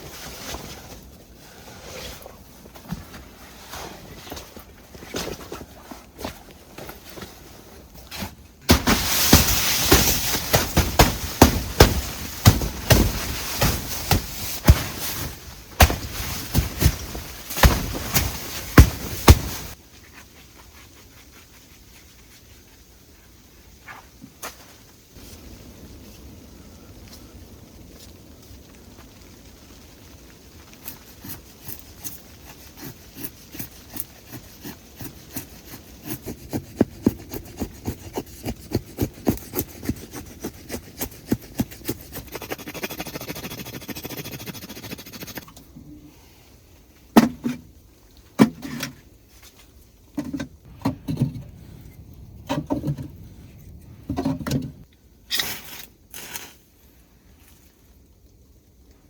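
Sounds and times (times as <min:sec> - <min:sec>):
hand saw cutting wood: 0:30.8 - 0:45.4.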